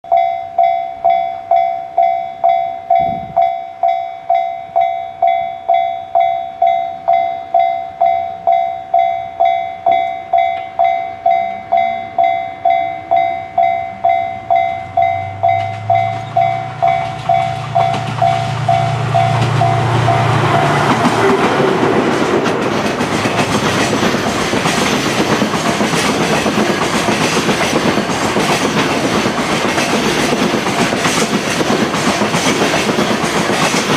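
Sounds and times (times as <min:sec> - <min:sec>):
level crossing bell dinging: 0:00.1 - 0:20.2
passing train rush: 0:00.1 - 0:33.9
train wheels clacking on rails: 0:00.1 - 0:33.9
diesel locomotive engine: 0:02.4 - 0:33.9.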